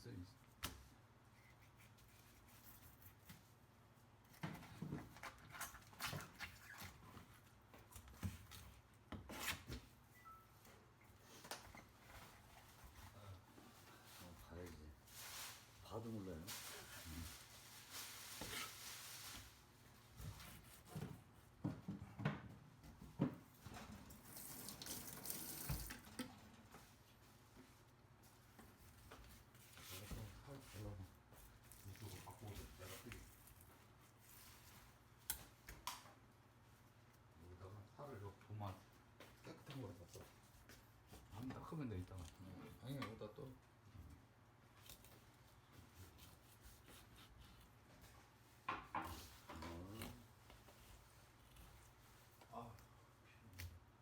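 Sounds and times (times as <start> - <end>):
tap water running into sink: 24.2 - 26.3.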